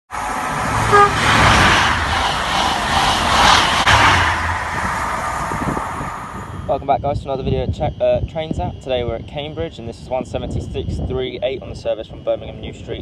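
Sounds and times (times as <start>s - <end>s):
train moving: 0.1s - 7.5s
low rumble: 0.1s - 8.0s
wind buffeting microphone: 0.2s - 13.0s.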